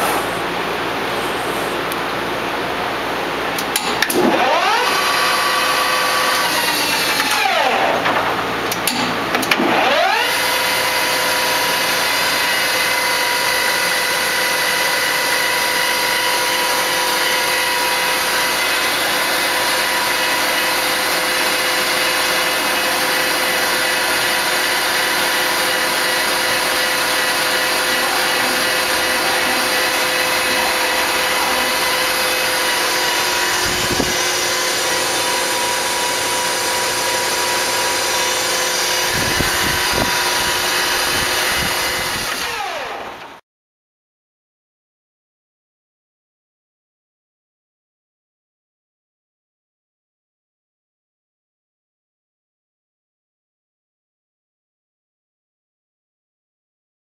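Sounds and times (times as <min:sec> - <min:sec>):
lathe spindle motor whine: 0:04.2 - 0:08.2, 0:09.6 - 0:43.2.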